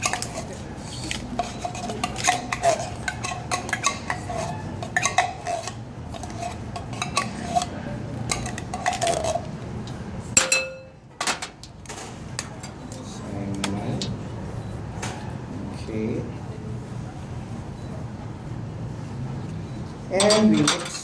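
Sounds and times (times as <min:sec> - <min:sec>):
metal spoon scraping tin can: 0:00.0 - 0:09.5
ringing clink: 0:10.4 - 0:11.0.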